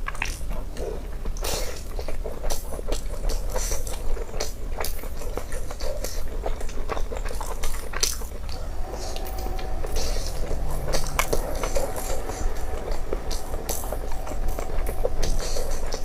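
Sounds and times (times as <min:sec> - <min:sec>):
person chewing meat: 0:00.0 - 0:08.5.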